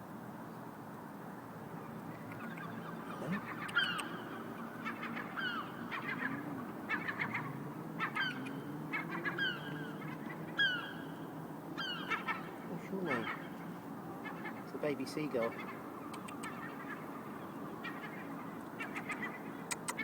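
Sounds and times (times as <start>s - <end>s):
low steady hum: 0.0s - 20.0s
gull chick peeping: 2.4s - 11.0s, 15.4s - 17.1s.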